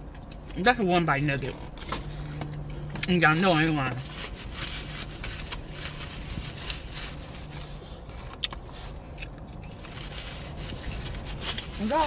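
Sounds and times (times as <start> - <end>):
low steady hum: 0.0 - 12.0
person chewing: 7.5 - 10.0.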